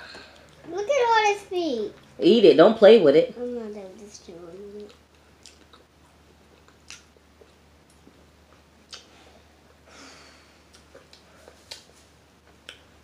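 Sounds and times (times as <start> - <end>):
person chewing: 4.8 - 9.1, 10.7 - 12.9.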